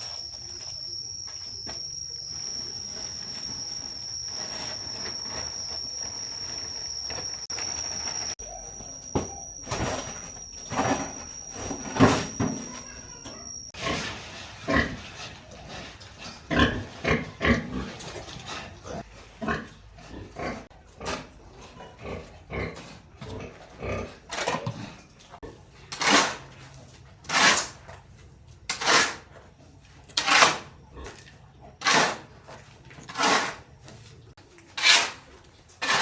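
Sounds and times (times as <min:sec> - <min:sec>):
pigs grunting: 0:13.8 - 0:25.7.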